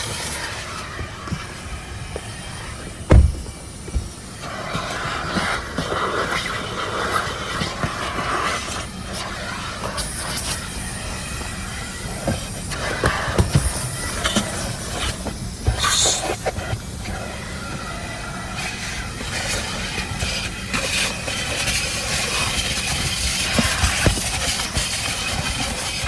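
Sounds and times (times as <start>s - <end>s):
vacuum hissing: 0.0s - 26.0s
knocks and clatter: 1.2s - 4.3s.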